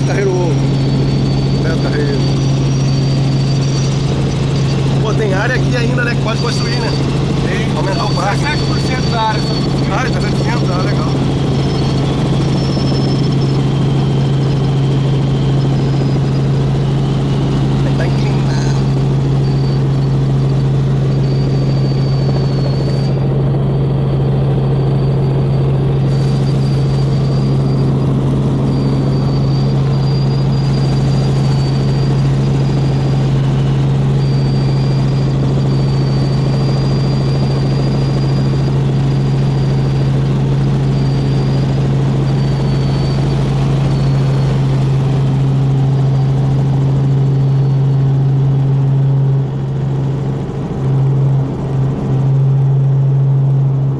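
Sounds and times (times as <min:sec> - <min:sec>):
faint high whistle: 0:00.0 - 0:20.2, 0:21.0 - 0:23.3, 0:24.8 - 0:45.2
helicopter drone: 0:00.0 - 0:53.9.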